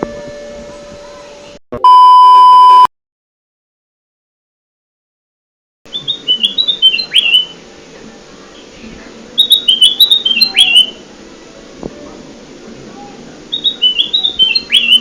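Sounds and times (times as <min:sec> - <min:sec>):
bird whistled call: 0:05.9 - 0:07.6, 0:09.4 - 0:11.0, 0:13.5 - 0:15.0.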